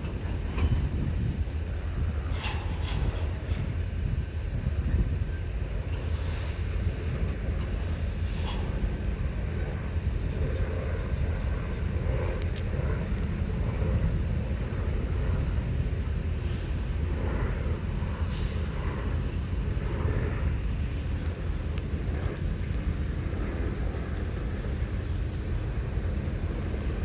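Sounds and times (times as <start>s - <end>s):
diesel locomotive rumbling: 0.0s - 27.0s
faint high whine: 0.0s - 27.0s.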